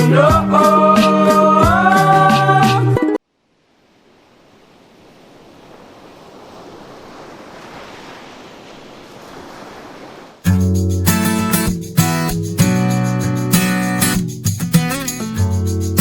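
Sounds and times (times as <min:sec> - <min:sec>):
ocean waves washing: 0:03.4 - 0:16.0
strummed acoustic guitar: 0:10.5 - 0:16.0.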